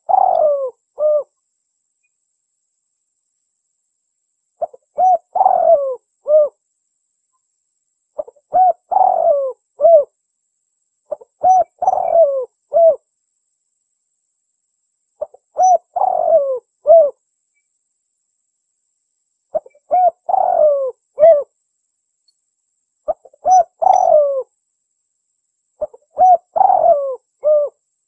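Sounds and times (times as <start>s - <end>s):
dove cooing: 0.0s - 1.3s, 4.6s - 6.6s, 8.2s - 10.1s, 11.1s - 13.0s, 15.2s - 17.2s, 19.5s - 21.5s, 23.1s - 24.5s, 25.8s - 27.8s.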